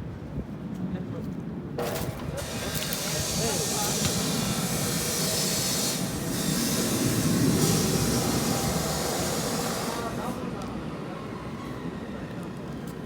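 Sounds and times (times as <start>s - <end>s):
jet aircraft flying overhead: 2.4s - 12.7s.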